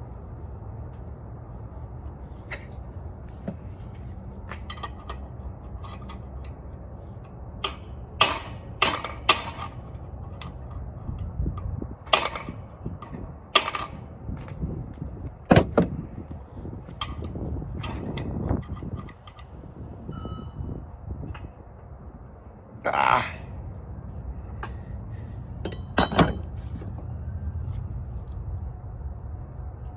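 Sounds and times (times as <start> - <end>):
tools clanking on engine parts: 15.5 - 16.0, 25.6 - 27.0.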